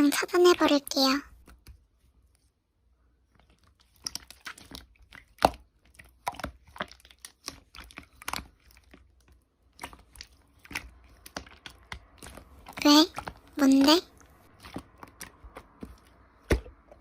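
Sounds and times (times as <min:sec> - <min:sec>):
slime squishing and popping: 0:03.3 - 0:13.5, 0:14.3 - 0:17.0.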